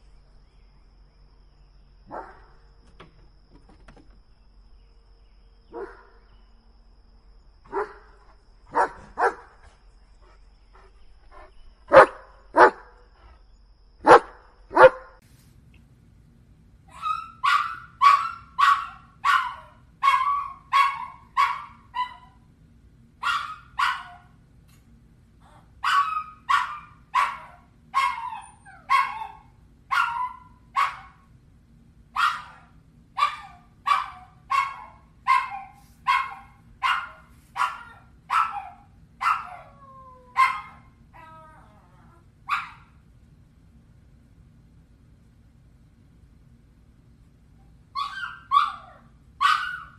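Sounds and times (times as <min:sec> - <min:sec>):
large dog barking loudly: 0:11.9 - 0:12.8, 0:14.0 - 0:15.2, 0:32.2 - 0:39.6
small dog yapping rapidly: 0:48.0 - 0:49.9.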